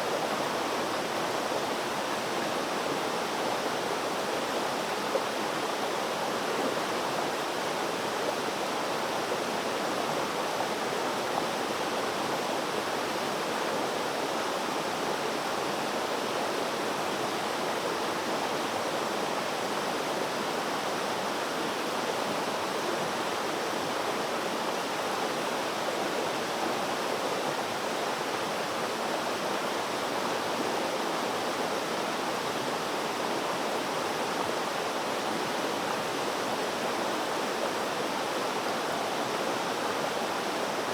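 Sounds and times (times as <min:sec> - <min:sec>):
water flowing steadily: 0:00.0 - 0:40.9.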